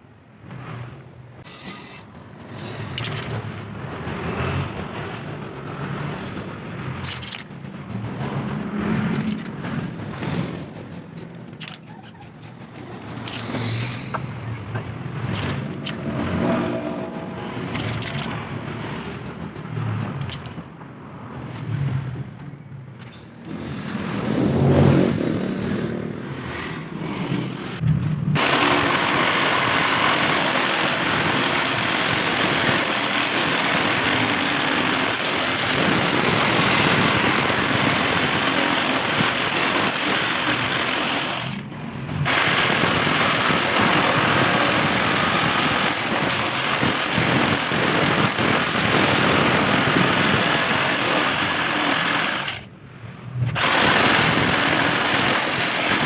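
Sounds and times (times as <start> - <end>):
jigsaw cutting metal: 2.8 - 13.8, 15.2 - 20.2, 28.4 - 41.6, 42.2 - 52.7, 53.6 - 56.0.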